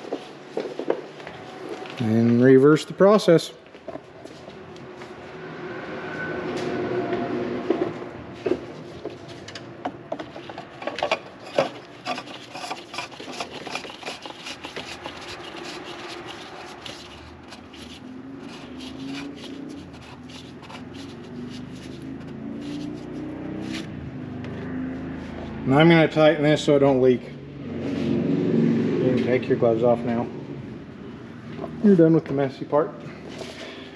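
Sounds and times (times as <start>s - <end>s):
scraping rubs: 10.2s - 24.0s, 33.3s - 33.9s.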